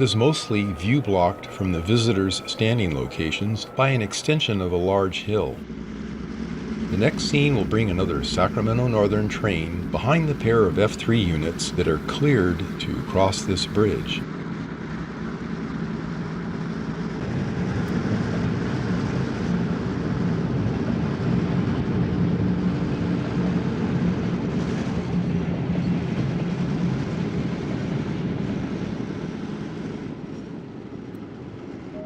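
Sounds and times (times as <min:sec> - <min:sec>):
train rumbling past: 0:00.0 - 0:14.2.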